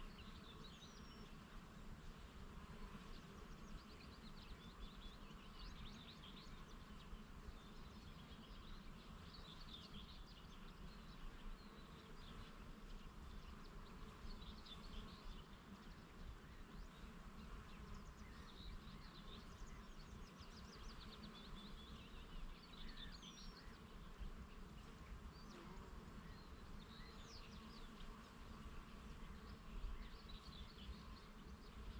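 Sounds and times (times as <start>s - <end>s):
buzz of bees: 0.0s - 31.9s
small birds chirping: 2.8s - 31.9s.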